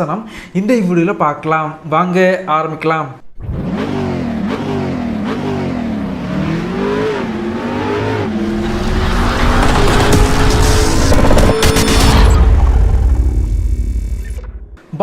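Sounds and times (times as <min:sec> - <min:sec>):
engine revving: 0:03.2 - 0:14.8.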